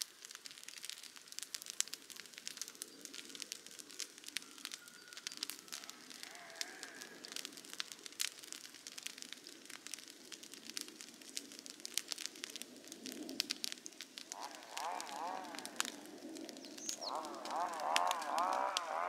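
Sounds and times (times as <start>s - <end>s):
campfire crackling and snapping: 0.0s - 19.0s
faint bird call: 4.2s - 7.4s, 14.3s - 19.0s.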